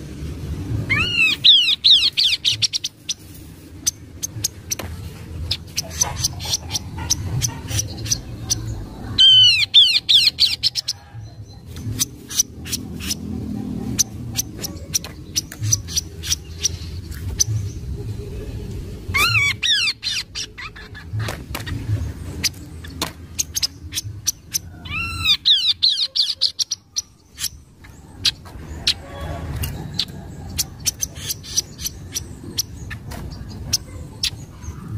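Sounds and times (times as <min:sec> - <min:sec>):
low steady rumble: 0:00.0 - 0:34.9
bird chirping and whistling: 0:00.9 - 0:03.2, 0:23.4 - 0:27.6.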